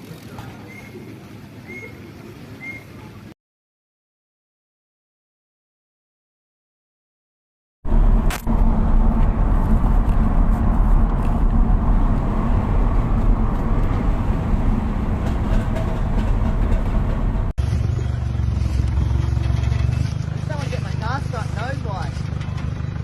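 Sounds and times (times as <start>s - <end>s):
motor vehicle running: 7.9s - 23.0s.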